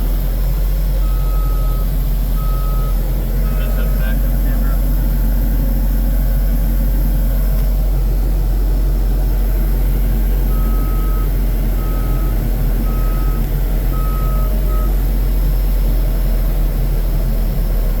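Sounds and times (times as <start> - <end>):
diesel engine running: 0.0 - 18.0
backup alarm beeping: 1.0 - 3.9, 10.5 - 15.0.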